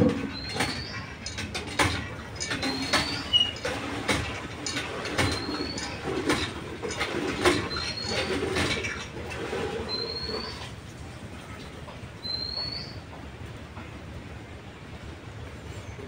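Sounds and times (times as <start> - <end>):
clicks and knocks: 0.0 - 9.1
rising bird whistle: 12.2 - 13.0.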